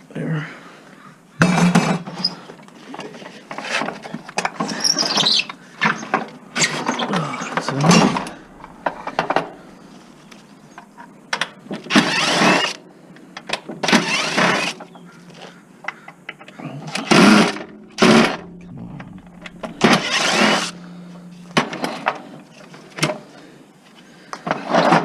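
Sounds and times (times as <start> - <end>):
metal squeaks: 4.6 - 7.2.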